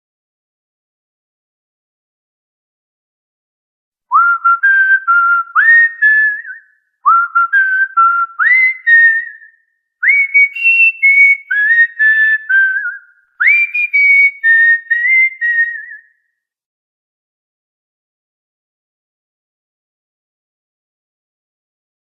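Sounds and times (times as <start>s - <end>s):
cockatiel whistling a tune: 4.1s - 16.2s.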